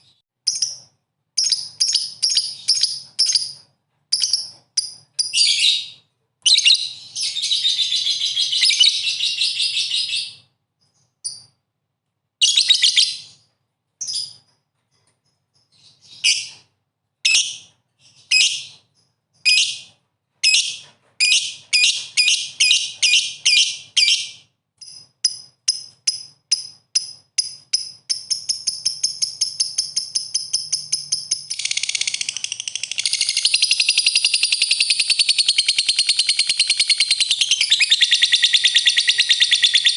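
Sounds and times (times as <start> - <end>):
lovebird chattering: 20.5 - 39.9.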